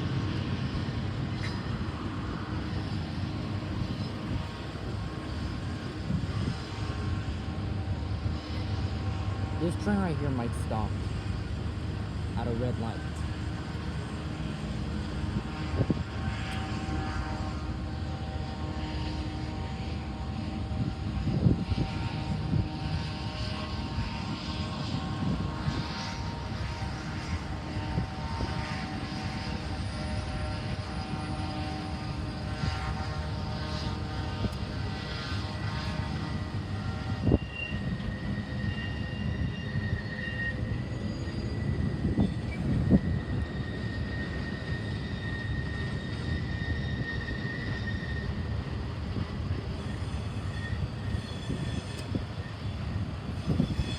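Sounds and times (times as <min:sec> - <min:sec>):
diesel locomotive drone: 0:00.0 - 0:53.9
high-pitched squeal: 0:14.0 - 0:53.9
train clanks: 0:41.3 - 0:53.9.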